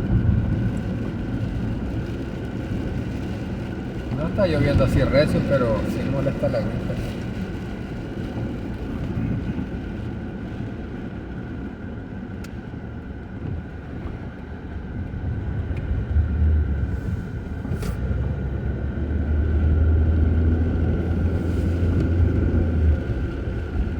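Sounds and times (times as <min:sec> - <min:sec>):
vehicle road noise rumble: 0:00.0 - 0:23.9.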